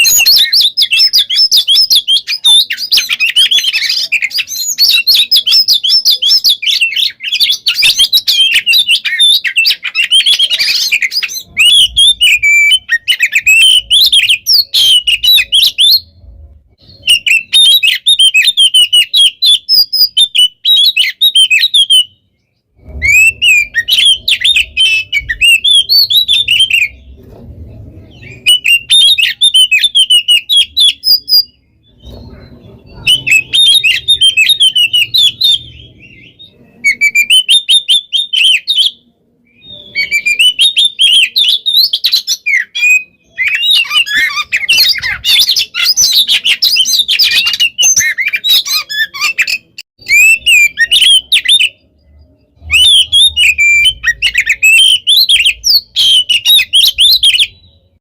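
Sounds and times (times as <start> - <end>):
songbird chattering and whistling: 0.0 - 58.0
faint low rumble: 16.0 - 16.9, 26.9 - 28.4.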